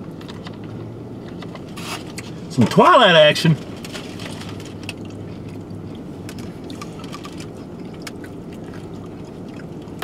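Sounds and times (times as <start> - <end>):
low hum inside a car: 0.0 - 10.0
man chewing food: 4.3 - 10.0.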